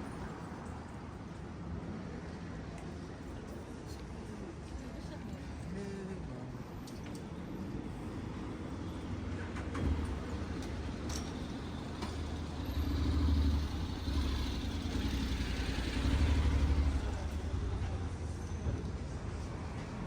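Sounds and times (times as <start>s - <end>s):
steady traffic hum: 0.0s - 20.0s
vehicles passing close by: 6.4s - 20.0s.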